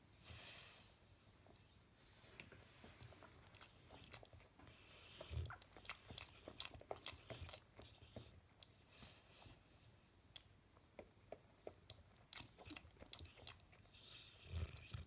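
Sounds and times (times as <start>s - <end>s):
dog breathing softly: 0.2s - 10.2s, 13.1s - 15.0s.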